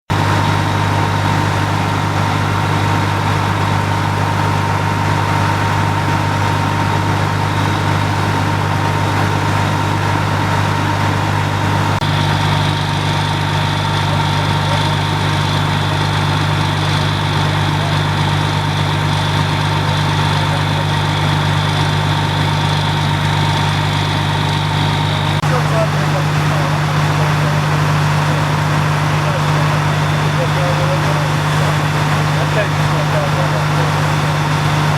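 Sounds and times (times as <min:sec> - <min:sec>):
fire engine idling: 0:00.0 - 0:34.9
high whine: 0:00.1 - 0:34.9.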